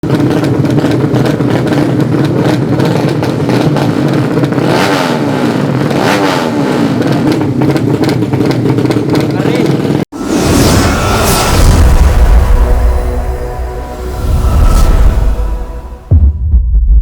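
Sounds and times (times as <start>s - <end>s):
motorcycle engines at high revs: 0.0s - 10.1s.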